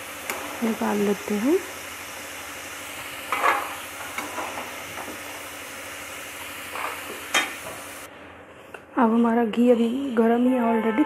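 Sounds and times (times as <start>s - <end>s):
potatoes sizzling in oil: 0.0s - 8.1s.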